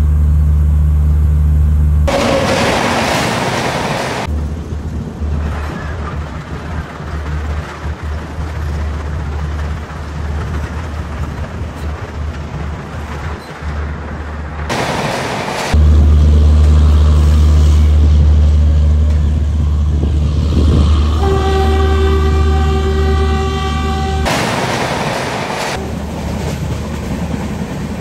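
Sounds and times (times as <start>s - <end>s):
train rumbling: 2.0s - 28.0s
locomotive horn: 2.1s - 3.3s, 19.6s - 24.4s.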